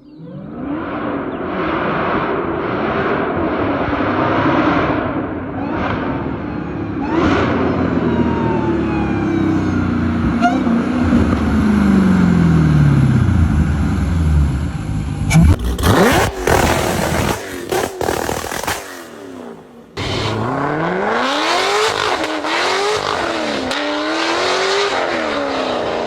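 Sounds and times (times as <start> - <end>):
car engine running: 19.6 - 23.8.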